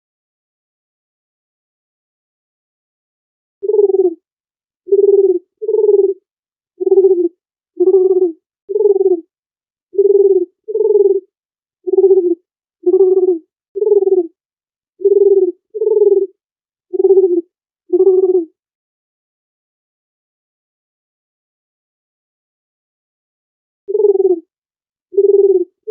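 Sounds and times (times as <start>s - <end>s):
dove cooing: 3.6s - 4.2s, 4.9s - 6.2s, 6.8s - 9.3s, 10.0s - 11.3s, 11.9s - 14.3s, 15.0s - 18.5s, 23.9s - 24.4s, 25.1s - 25.9s.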